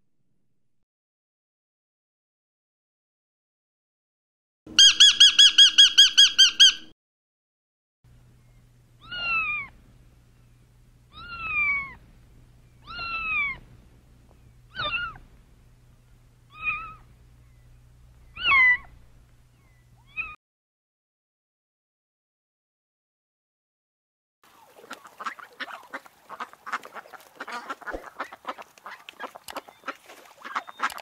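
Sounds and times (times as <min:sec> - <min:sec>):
parrot sharp calls: 0:04.8 - 0:06.9, 0:09.0 - 0:09.8, 0:12.8 - 0:13.6, 0:14.7 - 0:15.2, 0:16.5 - 0:17.1, 0:18.3 - 0:19.0
faint low hum: 0:08.1 - 0:20.4
kitten meowing: 0:09.0 - 0:09.8, 0:11.1 - 0:12.0, 0:12.8 - 0:13.6, 0:14.7 - 0:15.2, 0:16.5 - 0:17.0, 0:18.3 - 0:18.9, 0:20.1 - 0:20.4.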